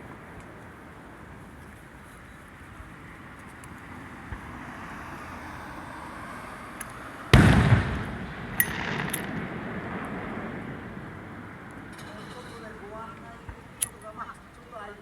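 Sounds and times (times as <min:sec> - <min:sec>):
firework crackles: 0:07.2 - 0:11.9
firework boom: 0:07.3 - 0:11.5.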